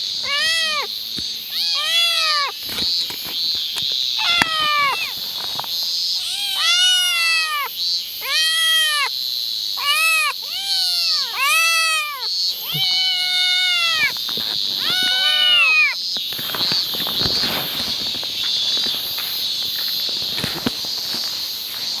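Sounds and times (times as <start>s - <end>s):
cat meowing: 0.2s - 2.6s, 4.2s - 5.2s, 6.2s - 9.2s, 9.8s - 16.0s.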